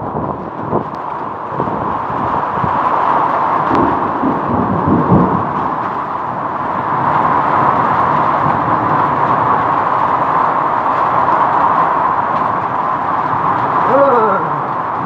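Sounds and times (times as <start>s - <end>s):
strong wind gusts: 0.0s - 15.0s.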